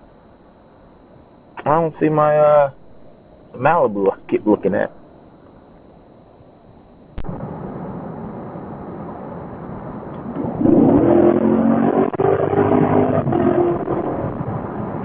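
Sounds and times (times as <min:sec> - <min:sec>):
car engine accelerating hard: 0:10.4 - 0:14.3.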